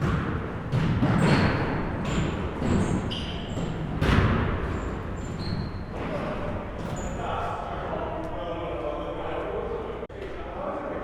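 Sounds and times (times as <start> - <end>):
basketballs bouncing on hardwood floor: 0.0 - 5.0
sneakers squeaking on court: 0.0 - 7.2.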